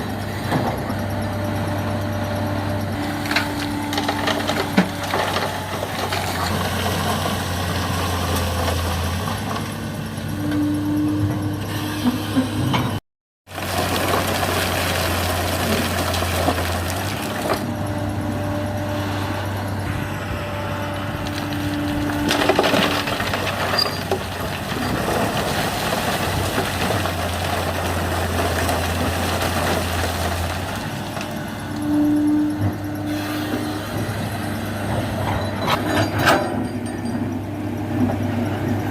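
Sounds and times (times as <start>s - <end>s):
diesel machinery engine hum: 0.0s - 38.9s
hydraulic whine: 17.0s - 24.2s, 31.3s - 38.9s.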